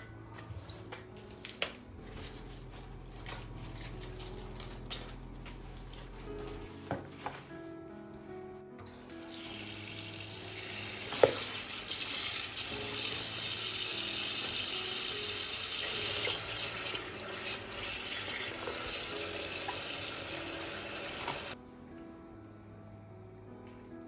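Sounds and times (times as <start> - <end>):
tap running into sink: 10.8 - 12.2, 15.8 - 21.6.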